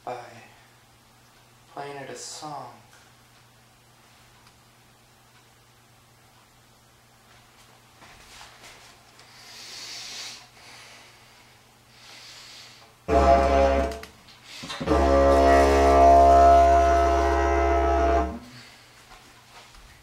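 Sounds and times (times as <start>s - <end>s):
didgeridoo drone: 13.1s - 18.6s.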